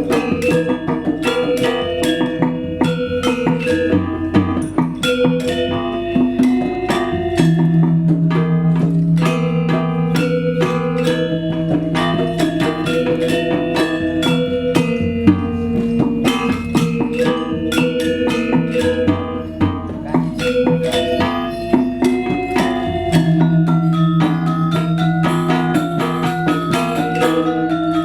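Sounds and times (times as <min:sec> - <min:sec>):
low gong tone: 0:00.0 - 0:28.0
metallophones playing fast notes: 0:00.0 - 0:28.0
deep drum strokes: 0:06.7 - 0:27.9.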